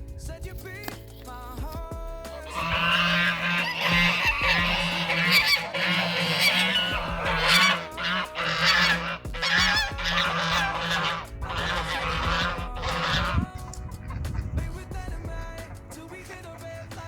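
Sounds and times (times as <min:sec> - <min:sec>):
geese honking: 0:02.3 - 0:14.7.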